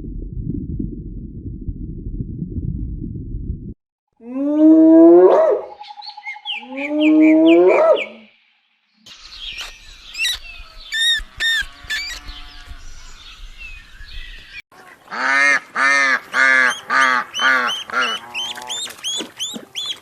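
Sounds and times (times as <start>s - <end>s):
low rumble: 0.0s - 3.8s
geese honking: 14.8s - 20.0s.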